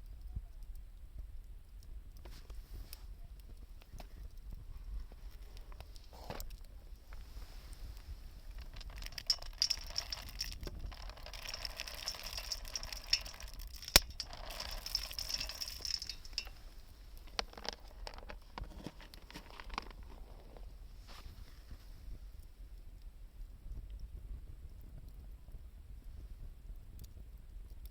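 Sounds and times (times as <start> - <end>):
wood fire crackling and hissing: 0.0 - 27.9.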